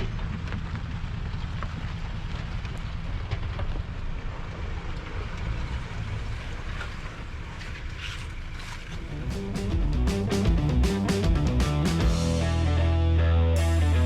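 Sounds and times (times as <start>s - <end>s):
vehicle engine rumbling at low revs: 0.0s - 14.0s.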